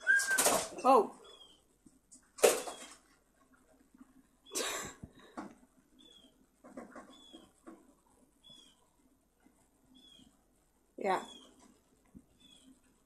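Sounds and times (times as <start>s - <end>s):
wings flapping: 0.0s - 0.8s, 2.4s - 3.0s
bird chirping: 0.0s - 1.7s, 5.9s - 7.7s, 8.4s - 8.9s, 9.9s - 10.4s, 11.0s - 11.7s, 12.3s - 12.9s
light taps and rustles: 6.6s - 8.0s.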